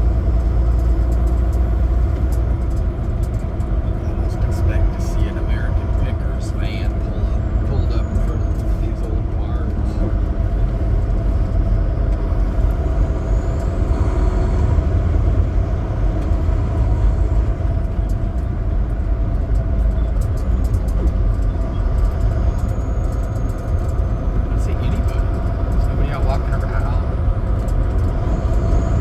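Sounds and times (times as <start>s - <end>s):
road rumble: 0.0s - 29.0s
truck diesel engine drone: 0.0s - 29.0s.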